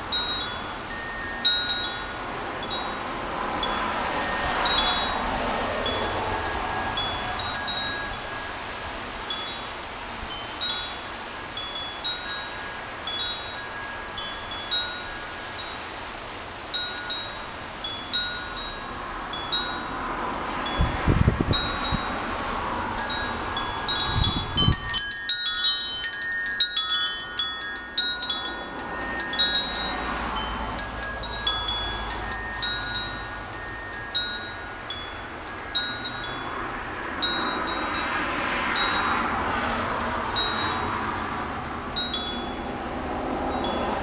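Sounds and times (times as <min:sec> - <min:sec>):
wind chime ringing: 0:00.0 - 0:15.9, 0:16.7 - 0:20.0, 0:20.6 - 0:22.2, 0:22.9 - 0:39.2, 0:40.3 - 0:41.0, 0:41.9 - 0:42.8, 0:43.4 - 0:44.0
strong wind rushing: 0:16.4 - 0:25.4
wind buffeting microphone: 0:16.4 - 0:44.0.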